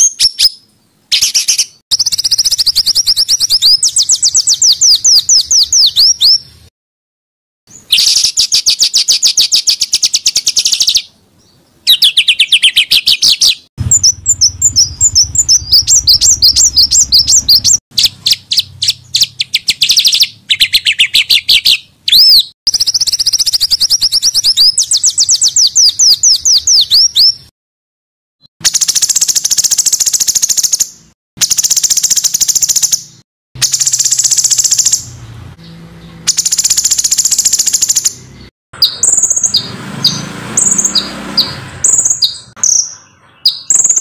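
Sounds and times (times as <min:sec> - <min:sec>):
songbirds singing rapid sharp notes: 0:00.0 - 0:06.7, 0:07.7 - 0:27.5, 0:28.6 - 0:44.0
low hum: 0:13.8 - 0:17.8.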